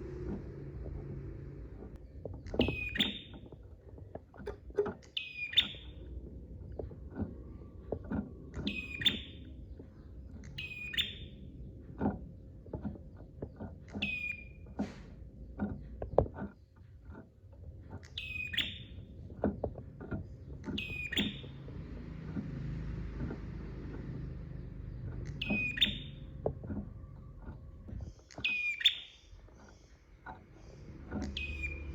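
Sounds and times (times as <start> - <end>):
songbird calling: 2.5 - 3.5, 4.5 - 6.1, 8.5 - 11.5, 13.9 - 14.8, 18.0 - 19.2, 20.2 - 22.2, 23.2 - 31.9.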